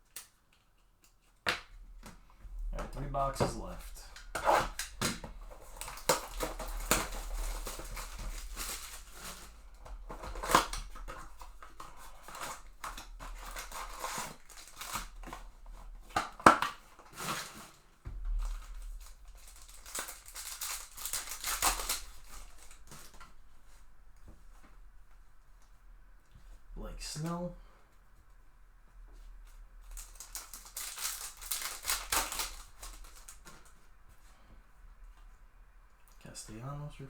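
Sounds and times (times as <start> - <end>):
cardboard rustles and clicks: 2.0 - 23.4, 29.5 - 33.8
plastic wrappers crinkling and tearing: 2.8 - 23.4, 29.5 - 33.9.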